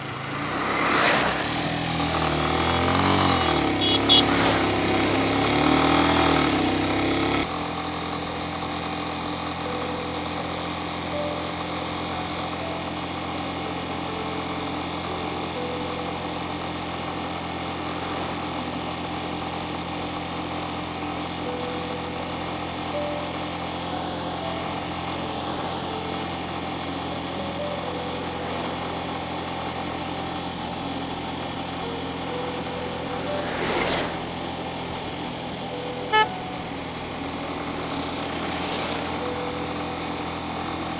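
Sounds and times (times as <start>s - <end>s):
engine idling: 0.0s - 40.9s
rush of noise: 32.4s - 35.8s.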